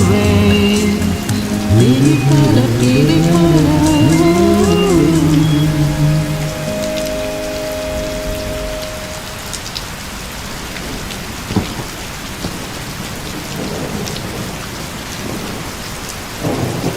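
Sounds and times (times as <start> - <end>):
low rumble: 0.0 - 6.9
held musical chord: 0.0 - 9.6
rain drops ticking: 0.0 - 16.9
steady rain falling: 0.0 - 16.9.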